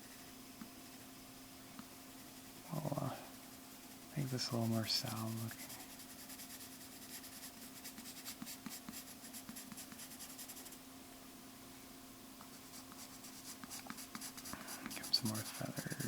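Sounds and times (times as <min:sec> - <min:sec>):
faint steady hum: 0:00.0 - 0:16.0
pencil scratching on paper: 0:03.9 - 0:10.8, 0:12.5 - 0:16.0.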